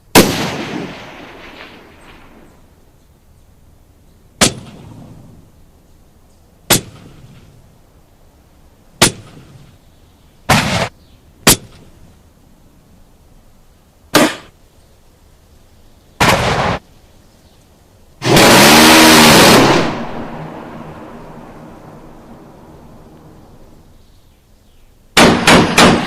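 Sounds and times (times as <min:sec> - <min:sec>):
continuous gunfire blast: 0:00.1 - 0:02.4, 0:04.4 - 0:05.1, 0:06.7 - 0:07.5, 0:10.5 - 0:10.9, 0:16.2 - 0:16.8, 0:18.2 - 0:20.8, 0:25.2 - 0:26.0
gunfire bursts: 0:00.1 - 0:02.4, 0:10.5 - 0:10.9, 0:14.1 - 0:14.5, 0:16.2 - 0:16.8, 0:18.2 - 0:21.0, 0:25.2 - 0:26.0
single gunshots: 0:00.1 - 0:02.5, 0:04.4 - 0:05.1, 0:06.7 - 0:07.6, 0:09.0 - 0:09.7, 0:10.5 - 0:11.9, 0:14.1 - 0:14.5, 0:16.2 - 0:16.8, 0:25.2 - 0:26.0.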